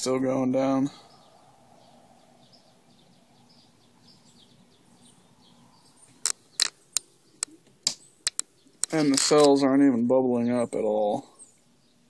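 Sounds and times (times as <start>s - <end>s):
faint bird chirps: 0.8s - 9.2s
sharp clicks from handling gear: 6.1s - 9.6s.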